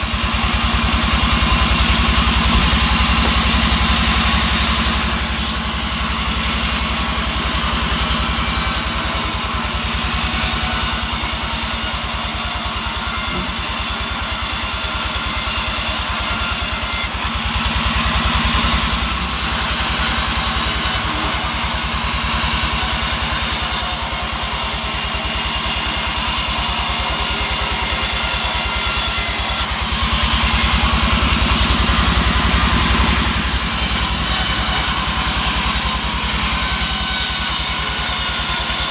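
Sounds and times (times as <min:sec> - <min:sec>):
saw cutting log: 0:00.0 - 0:38.9
sawmill engine running: 0:00.0 - 0:38.9.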